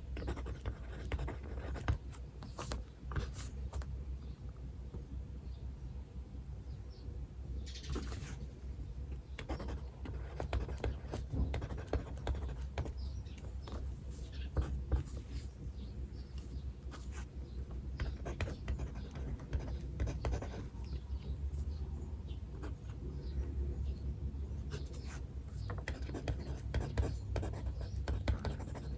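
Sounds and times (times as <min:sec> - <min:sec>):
pen scratching on paper: 0:00.2 - 0:03.8, 0:07.9 - 0:08.4, 0:09.4 - 0:13.0, 0:13.6 - 0:15.6, 0:16.2 - 0:17.3, 0:18.0 - 0:20.8, 0:24.7 - 0:28.9
faint bird chirps: 0:06.6 - 0:10.4, 0:12.8 - 0:24.1.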